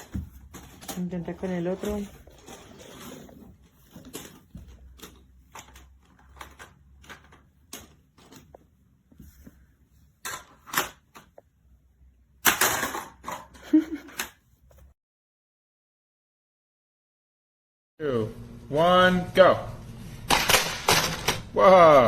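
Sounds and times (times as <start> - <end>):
plastic toy clattering: 0.0 - 8.6, 10.2 - 11.3, 12.4 - 14.4, 20.3 - 21.5.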